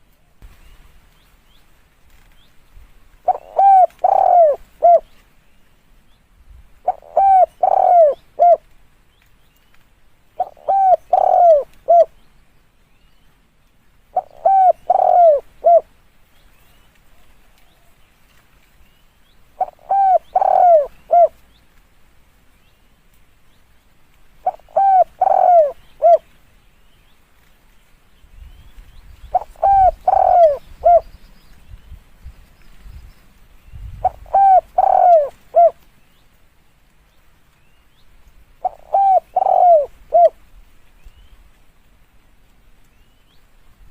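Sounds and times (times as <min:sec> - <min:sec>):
dove cooing: 0:03.2 - 0:05.1, 0:06.8 - 0:08.6, 0:10.4 - 0:12.1, 0:14.1 - 0:15.9, 0:19.6 - 0:21.4, 0:24.4 - 0:26.3, 0:29.3 - 0:31.0, 0:34.0 - 0:35.8, 0:38.6 - 0:40.4.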